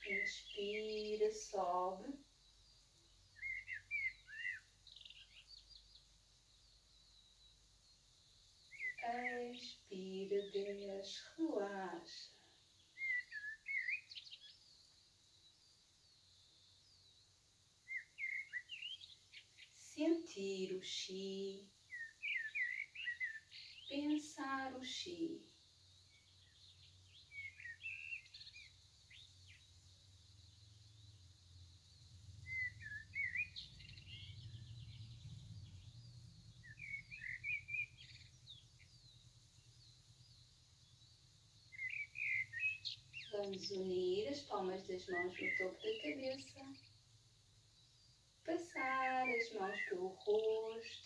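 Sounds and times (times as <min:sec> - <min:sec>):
small birds twittering: 0:00.0 - 0:51.0
songbird singing faintly: 0:00.0 - 0:51.0
faint low hum: 0:23.5 - 0:51.0.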